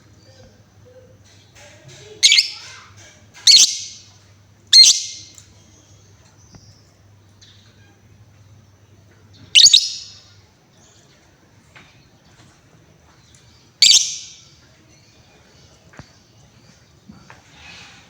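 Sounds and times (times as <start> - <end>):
lovebird shrill calls: 2.2 - 2.6, 3.5 - 4.0, 4.7 - 5.3, 9.6 - 10.2, 13.8 - 14.4.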